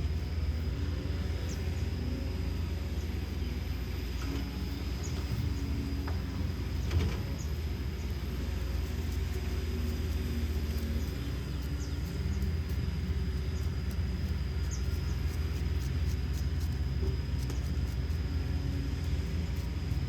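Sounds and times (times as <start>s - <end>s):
diesel engine rumbling steadily: 0.0s - 20.0s.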